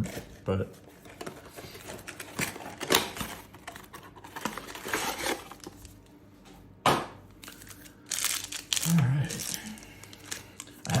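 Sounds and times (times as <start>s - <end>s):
plastic wrapping crinkling: 7.4s - 11.0s.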